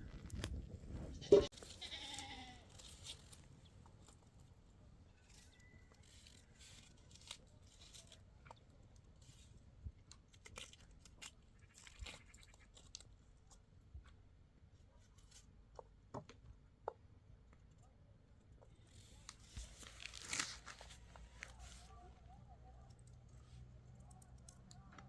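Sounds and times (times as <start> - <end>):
faint clicks and rustles: 0.0 - 16.6, 17.5 - 25.0
goat bleating: 1.2 - 2.7.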